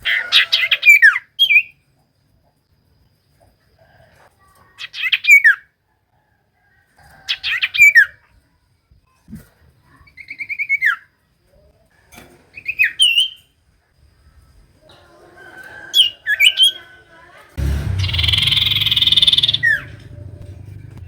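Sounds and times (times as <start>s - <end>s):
bird chirping: 17.6s - 21.0s
loud rasping noise: 17.6s - 21.0s
bird whistled notes: 18.0s - 19.8s.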